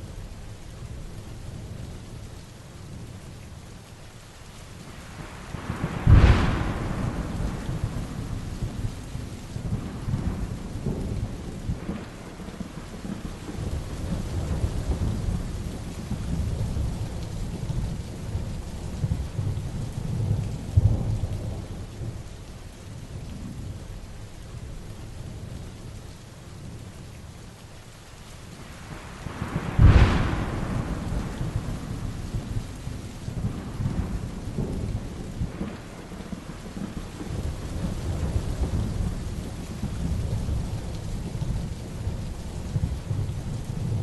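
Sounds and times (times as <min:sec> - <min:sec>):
heavy rain falling: 0:00.0 - 0:44.0
thunder rumbling: 0:05.0 - 0:22.3, 0:28.6 - 0:44.0.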